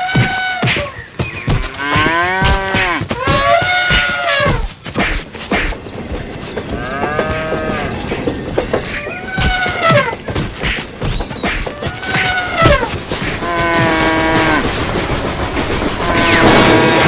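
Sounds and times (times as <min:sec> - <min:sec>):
cattle mooing: 0:01.5 - 0:04.7, 0:06.7 - 0:08.2, 0:11.8 - 0:14.8.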